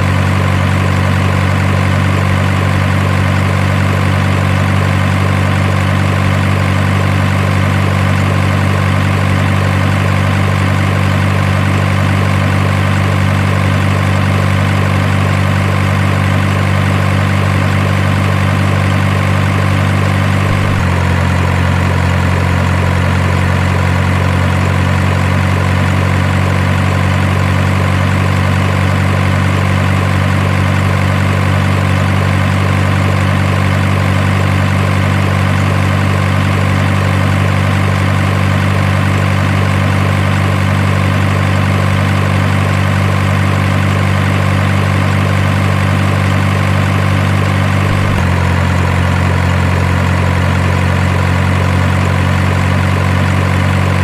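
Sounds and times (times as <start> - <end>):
toy truck engine idling: 0.0 - 54.0.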